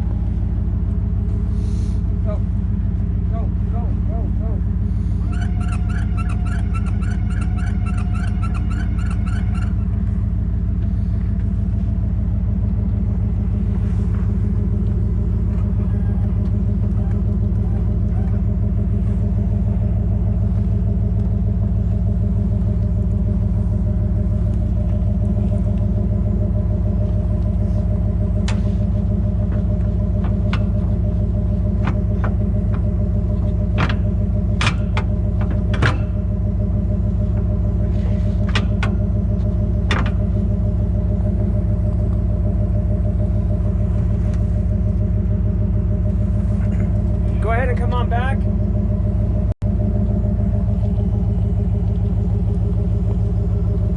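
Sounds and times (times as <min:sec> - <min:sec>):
truck engine idling: 0:00.0 - 0:53.9
rapid pulsing high tone: 0:05.2 - 0:10.0.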